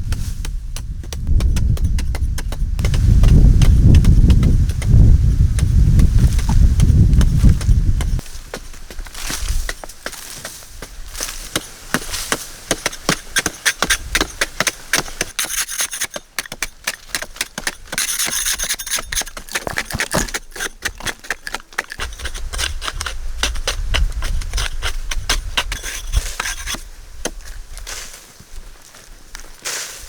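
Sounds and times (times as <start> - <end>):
scraping: 11.5 - 27.6.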